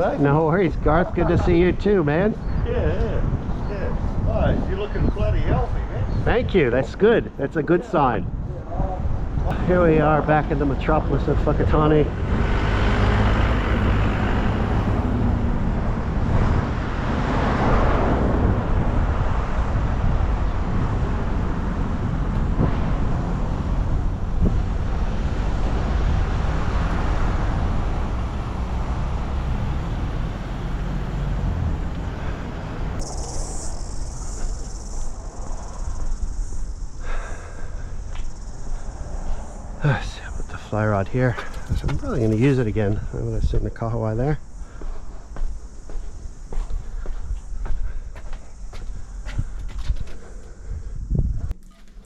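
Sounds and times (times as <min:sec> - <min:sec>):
road traffic rumble: 0:00.0 - 0:52.0
wind on microphone: 0:00.0 - 0:52.0
vehicle passing: 0:09.5 - 0:47.6
steady high hiss: 0:29.4 - 0:49.2.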